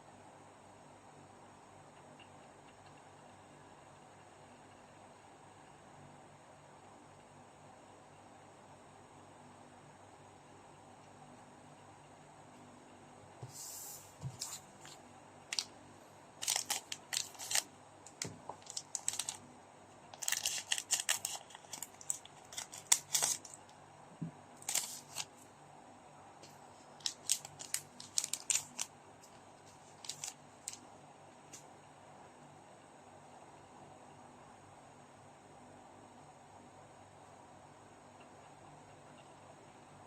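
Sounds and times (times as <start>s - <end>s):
quiet hiss: 0.0s - 40.0s
trading card packaging crinkling: 14.3s - 15.7s, 16.4s - 19.4s, 20.1s - 23.7s, 24.6s - 25.4s, 27.0s - 30.8s.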